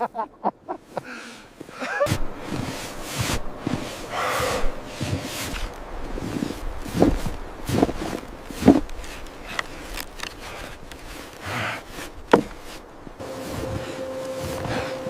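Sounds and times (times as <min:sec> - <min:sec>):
knocks and thuds: 0:12.3 - 0:12.6
held music note: 0:13.2 - 0:15.0.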